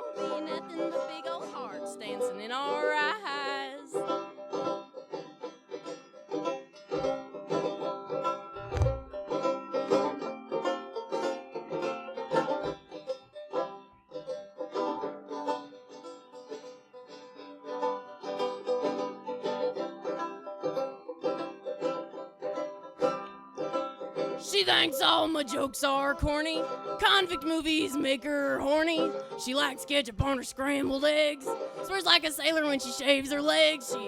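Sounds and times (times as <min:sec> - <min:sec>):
plucked string notes: 0:00.0 - 0:34.0
low thump: 0:08.6 - 0:09.2.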